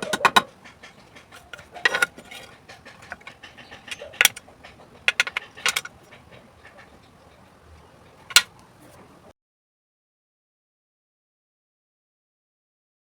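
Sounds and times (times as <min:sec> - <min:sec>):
plastic and metal parts clattering: 0:00.0 - 0:07.0, 0:08.3 - 0:09.0.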